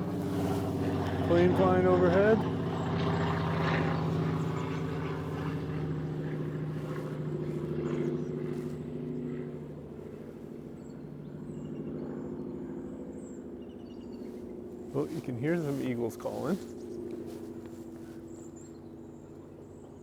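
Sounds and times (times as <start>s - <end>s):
plane engine drone overhead: 0.0s - 20.0s.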